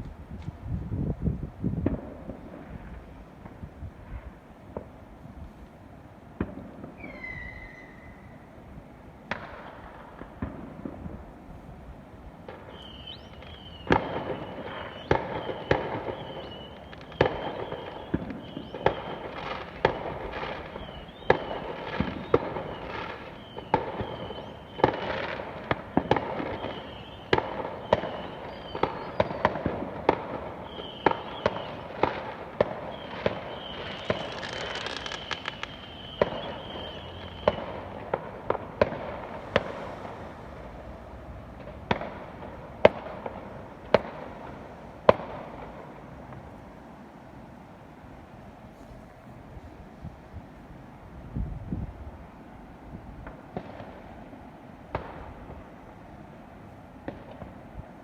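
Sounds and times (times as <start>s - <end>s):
fireworks bangs and cracks: 1.6s - 5.0s, 6.4s - 7.5s, 9.3s - 11.4s, 12.4s - 46.6s, 53.2s - 54.3s, 54.9s - 55.7s, 57.0s - 58.0s
high steady whistling tone: 7.0s - 8.6s, 12.7s - 19.3s, 20.7s - 25.2s, 26.3s - 29.5s, 30.6s - 32.0s, 32.9s - 38.0s.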